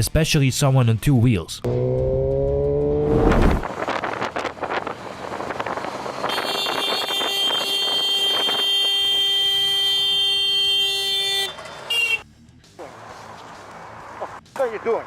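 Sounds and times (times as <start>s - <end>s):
road noise: 1.6s - 15.0s
vehicle horn long blast: 6.2s - 12.2s.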